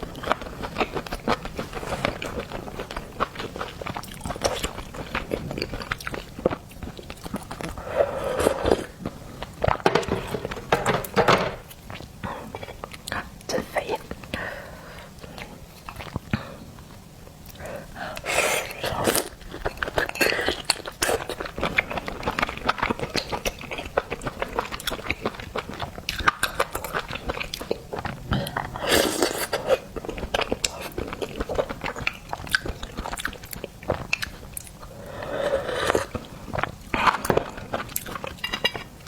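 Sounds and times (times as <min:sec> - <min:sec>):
chewing seafood: 0:00.0 - 0:10.9, 0:11.6 - 0:39.0.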